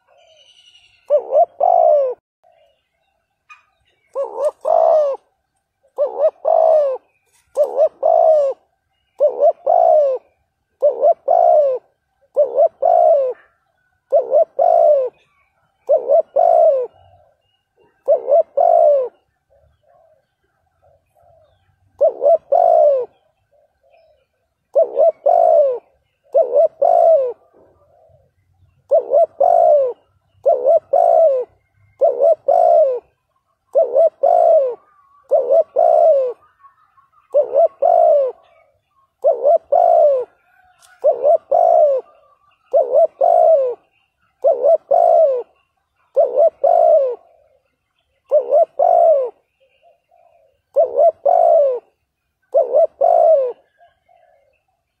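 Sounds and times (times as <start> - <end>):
dove cooing: 0.0 - 2.8, 3.5 - 54.9.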